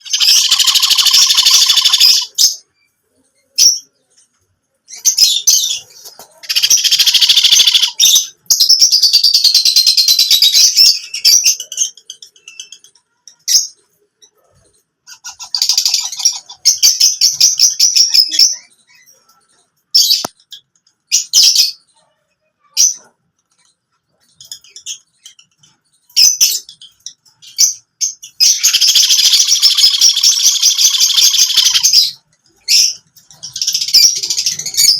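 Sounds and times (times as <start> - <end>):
baby parrots squawking: 0.0 - 2.6, 5.7 - 8.3, 15.1 - 18.6, 28.4 - 34.9.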